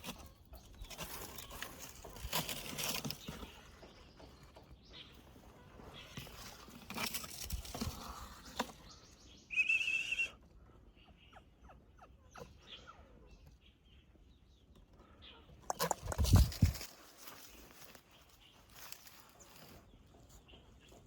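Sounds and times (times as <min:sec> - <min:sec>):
rustling handling noise: 0:00.0 - 0:04.4, 0:05.2 - 0:08.9, 0:15.6 - 0:20.0.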